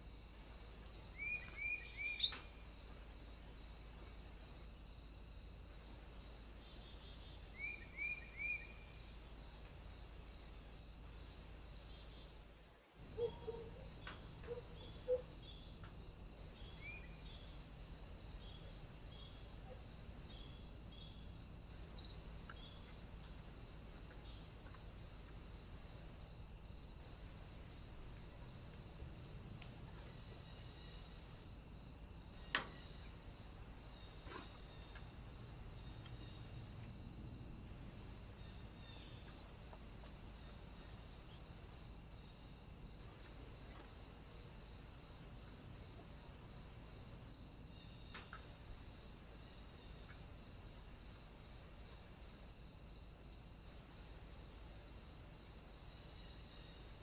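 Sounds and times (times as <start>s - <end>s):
bird chirps: 1.2s - 2.5s.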